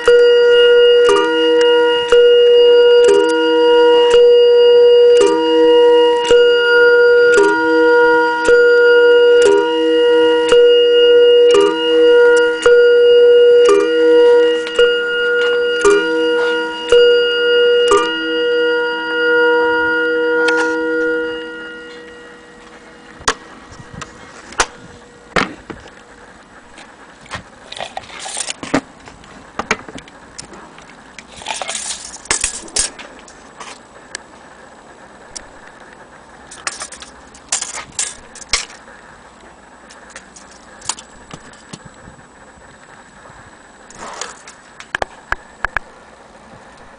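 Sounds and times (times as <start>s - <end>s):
clock chime strikes: 0.0s - 26.2s
clock mechanism clicks and rattles: 29.7s - 33.8s, 36.5s - 38.9s.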